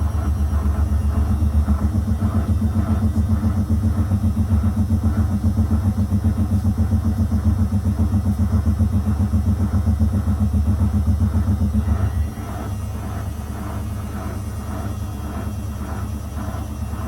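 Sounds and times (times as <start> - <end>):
washing machine drum spinning: 0.0 - 17.0.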